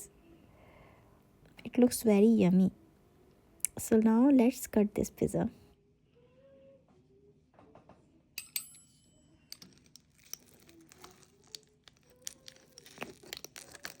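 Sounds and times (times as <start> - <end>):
crispy pizza crust being cut: 10.2 - 14.0.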